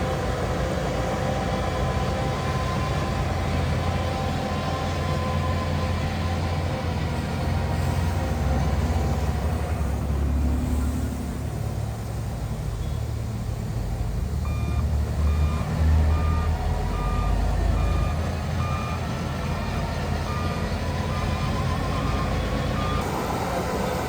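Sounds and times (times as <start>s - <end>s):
diesel engine rumbling: 0.0s - 24.0s
reversing alarm beeping: 14.4s - 19.1s, 20.2s - 24.0s.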